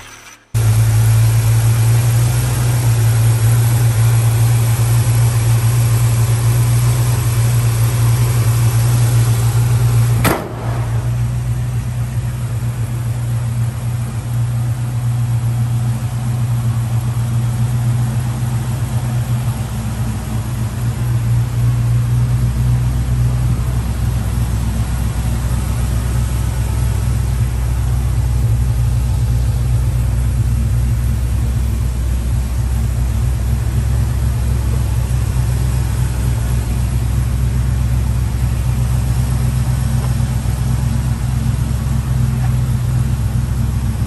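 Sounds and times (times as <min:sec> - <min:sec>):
car engine idling: 0:00.0 - 0:44.0
sharp click: 0:10.2 - 0:11.2.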